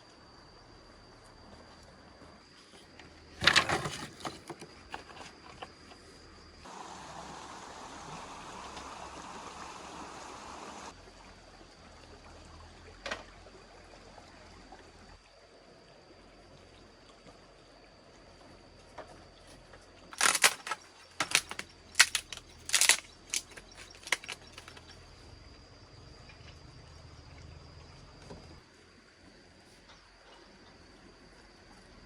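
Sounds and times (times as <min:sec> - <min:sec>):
short clatter: 0:03.4 - 0:05.6, 0:20.2 - 0:24.9.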